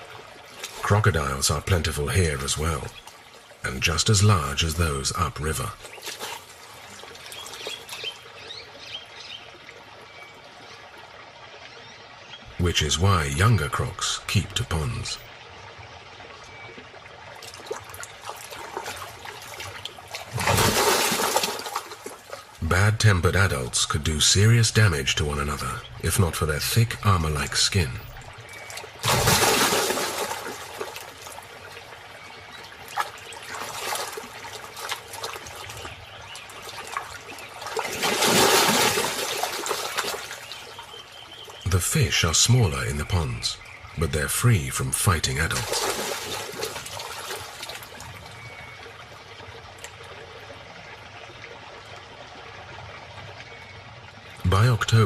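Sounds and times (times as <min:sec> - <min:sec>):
water splashing: 0:00.0 - 0:55.0
water trickling and lapping: 0:00.0 - 0:55.0
crocodiles splashing in water: 0:17.3 - 0:22.6, 0:28.4 - 0:41.6, 0:45.5 - 0:48.8.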